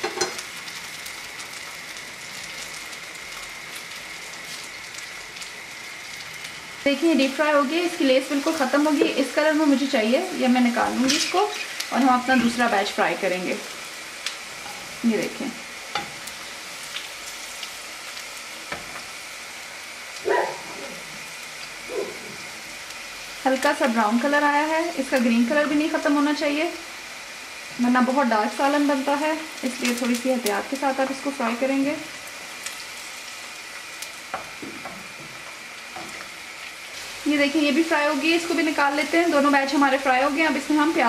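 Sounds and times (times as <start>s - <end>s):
okra sizzling in hot oil: 0.0s - 41.0s.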